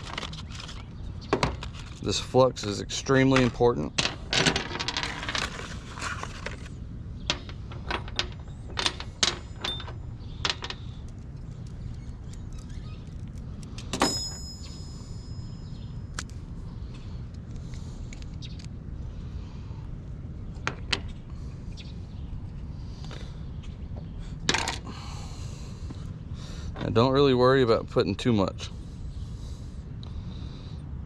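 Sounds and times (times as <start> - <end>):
steady low hum: 0.0 - 31.0
sharp metallic clink: 14.0 - 16.0.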